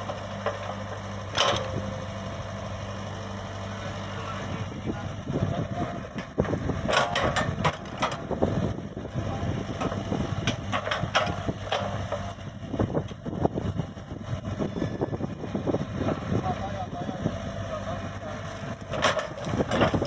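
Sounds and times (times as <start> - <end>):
excavator diesel engine running: 0.0 - 20.0
metallic clanks and knocks: 6.9 - 8.2, 9.8 - 12.2, 18.8 - 20.0.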